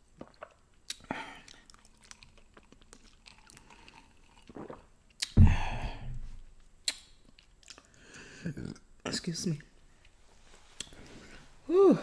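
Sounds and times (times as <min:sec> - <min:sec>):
wet mouth clicks: 0:00.2 - 0:05.4, 0:06.8 - 0:07.9
close chewing: 0:00.3 - 0:04.5.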